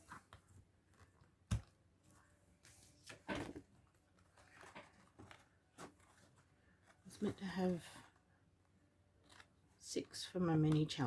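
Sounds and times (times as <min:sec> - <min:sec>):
rustle of paper handling: 0:02.6 - 0:08.2.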